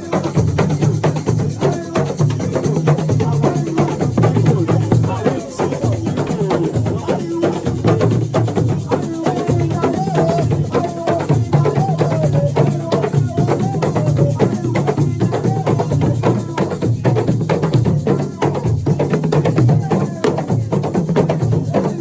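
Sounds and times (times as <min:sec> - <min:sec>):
fast hand drum rhythm: 0:00.0 - 0:22.0
person singing: 0:00.0 - 0:22.0.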